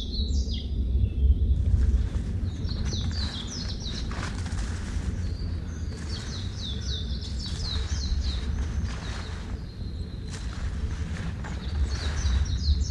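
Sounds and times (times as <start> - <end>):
songbird chirping: 0.1 - 12.9
steady low rumble: 0.7 - 12.9.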